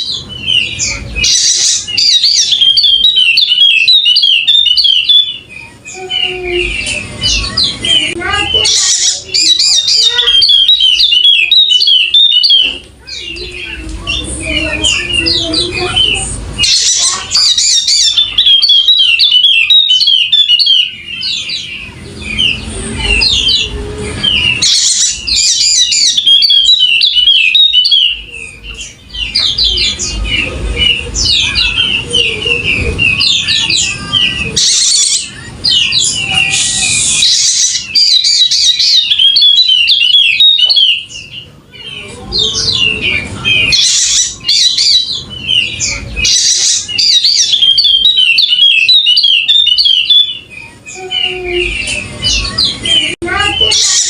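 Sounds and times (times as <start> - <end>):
bird chattering song: 0.0 - 54.0.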